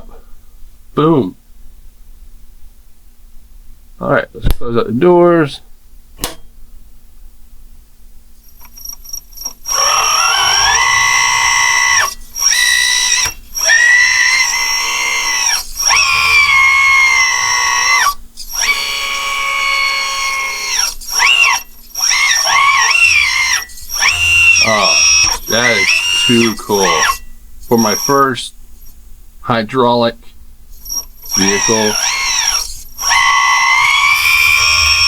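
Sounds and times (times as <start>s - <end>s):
pump motor whining: 9.4s - 28.2s, 30.8s - 35.0s.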